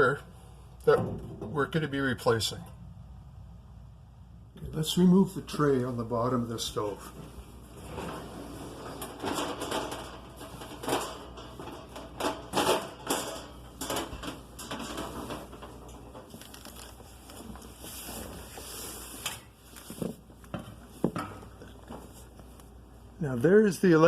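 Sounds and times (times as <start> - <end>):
metal drawer knocks and scrapes: 7.7 - 16.2.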